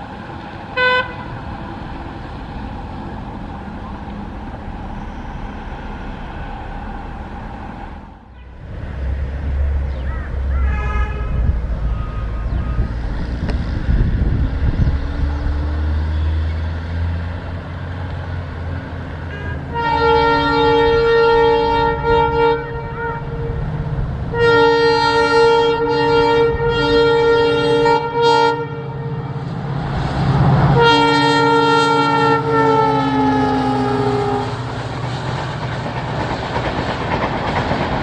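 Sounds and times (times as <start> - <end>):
low train rumble: 0.0 - 38.0
locomotive horn blasts: 0.8 - 1.4, 8.3 - 8.7, 10.6 - 12.9, 19.2 - 23.7, 24.3 - 29.4, 30.8 - 34.6.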